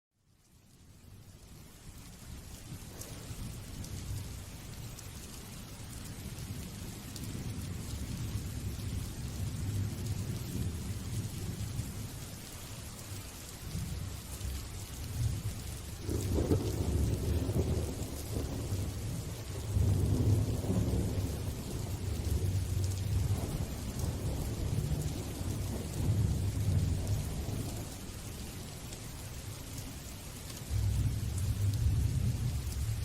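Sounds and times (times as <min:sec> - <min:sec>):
rain hissing: 0:00.3 - 0:33.0
thunder rumbling: 0:13.7 - 0:28.7, 0:30.6 - 0:33.0.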